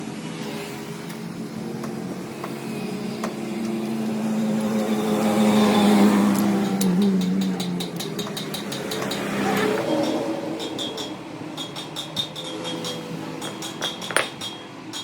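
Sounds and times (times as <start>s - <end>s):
motor humming: 0.4s - 10.2s
rapid regular ticking: 1.0s - 15.0s.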